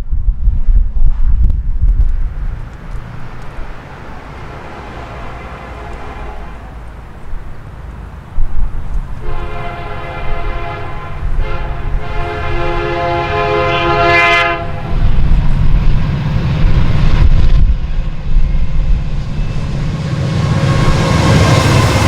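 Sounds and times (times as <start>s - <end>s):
train rumbling on track: 0.0s - 22.0s
locomotive air horn blasts: 5.2s - 6.9s, 9.2s - 15.0s.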